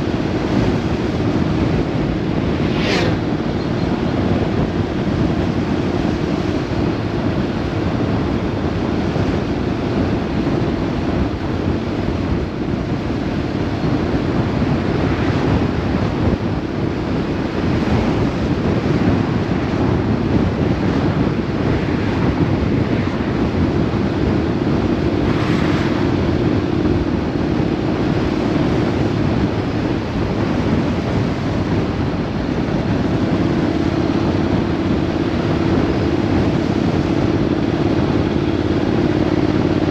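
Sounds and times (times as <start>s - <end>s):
engine hum: 0.0s - 39.9s
wind buffeting microphone: 0.0s - 39.9s.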